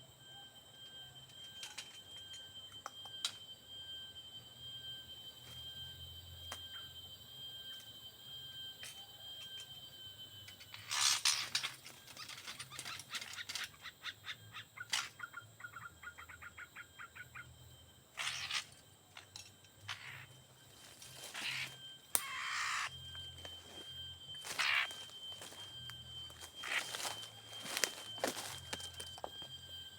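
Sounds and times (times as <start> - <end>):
bird rapid clicking calls: 21.4 - 22.9.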